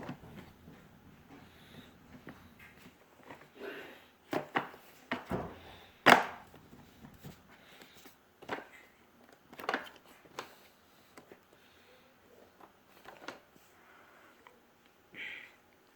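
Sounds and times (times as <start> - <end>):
hard knocks and clatters: 5.2 - 6.9.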